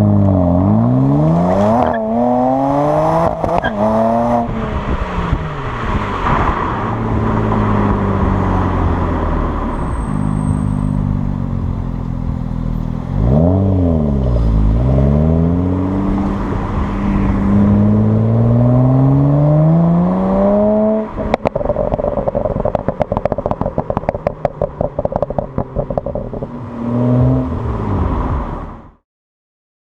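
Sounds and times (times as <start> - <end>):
car engine accelerating: 0.0 - 29.0
exhaust pops and crackles: 21.2 - 26.6.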